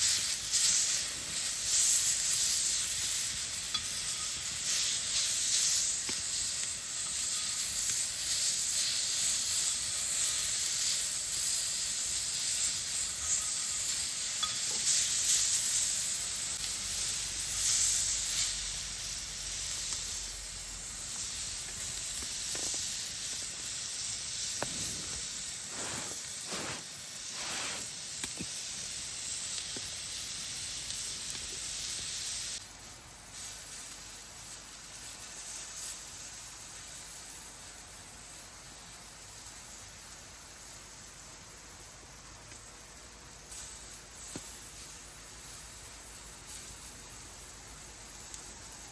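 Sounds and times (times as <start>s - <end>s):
meat sizzling over fire: 0.0s - 48.9s
fire crackling pops: 19.7s - 30.0s.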